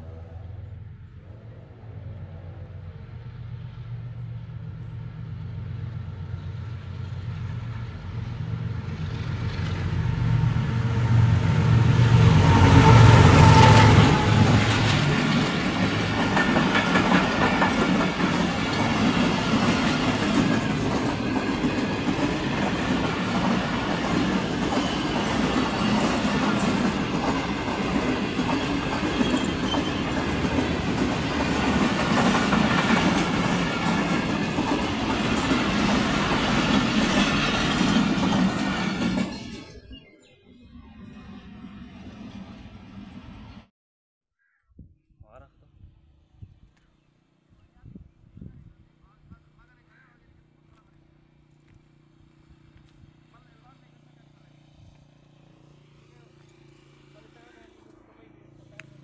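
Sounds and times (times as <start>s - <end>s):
diesel locomotive engine rumble: 0.0s - 39.9s
train wheels clattering on rails: 13.3s - 39.6s.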